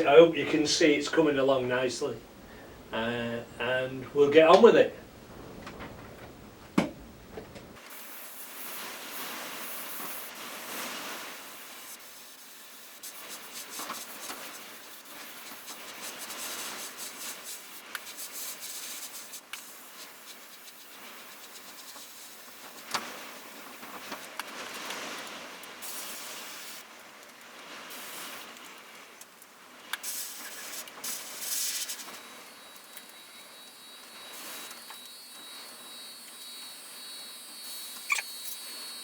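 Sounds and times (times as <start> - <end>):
airbrush air hiss: 7.8 - 24.3, 27.9 - 28.5, 30.0 - 39.0.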